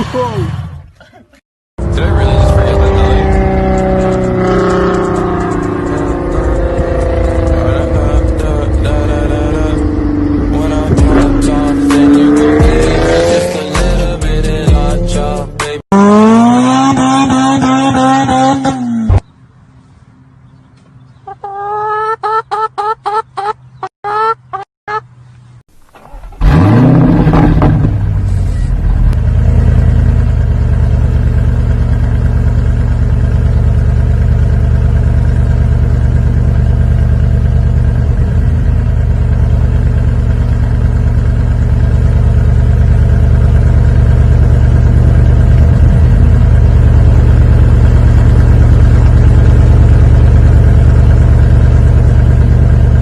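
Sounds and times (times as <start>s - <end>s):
car engine starting and idling: 1.8s - 16.4s, 25.7s - 53.0s.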